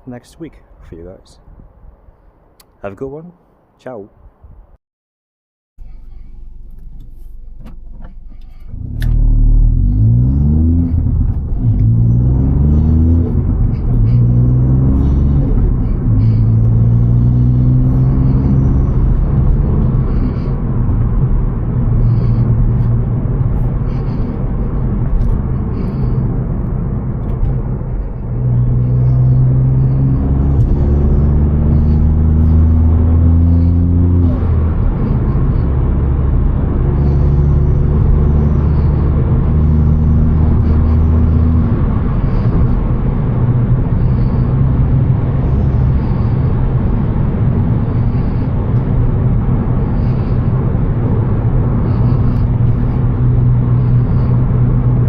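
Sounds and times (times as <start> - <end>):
road rumble: 0.0 - 4.8, 5.8 - 55.0
car engine running: 5.8 - 55.0.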